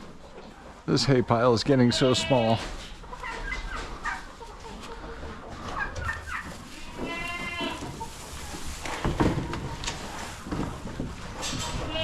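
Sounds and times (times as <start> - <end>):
chickens clucking: 0.0 - 12.0
goat bleating: 1.8 - 2.7, 6.7 - 8.0, 11.7 - 12.0.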